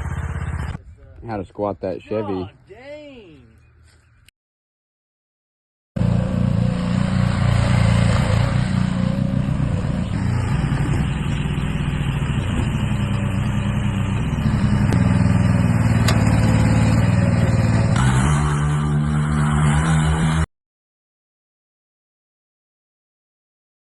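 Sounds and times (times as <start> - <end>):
engine running: 0.0 - 0.8, 6.0 - 20.5.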